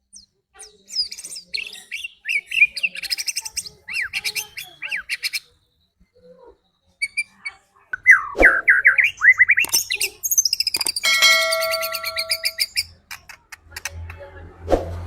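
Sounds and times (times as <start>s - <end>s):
bird singing whistled notes: 7.0s - 12.9s.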